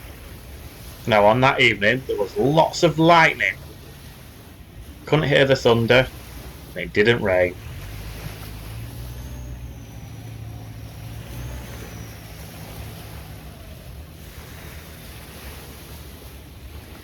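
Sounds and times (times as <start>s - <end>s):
rushing wind: 0.0s - 17.0s
sea noise: 0.0s - 17.0s.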